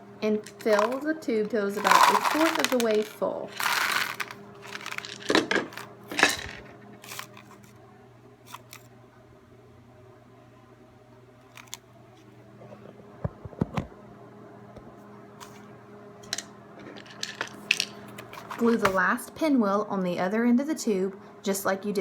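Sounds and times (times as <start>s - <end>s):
grains rattling in cardboard tube: 0.4s - 7.5s.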